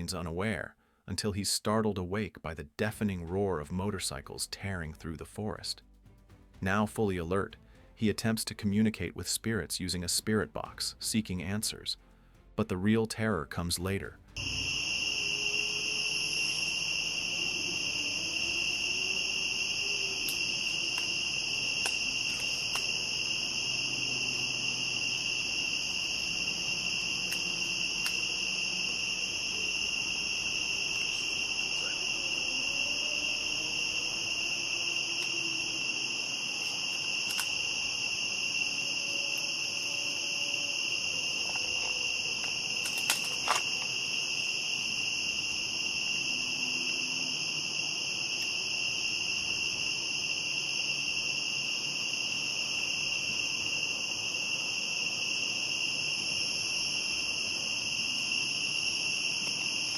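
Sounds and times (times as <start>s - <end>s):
crickets chirring: 13.9s - 59.9s.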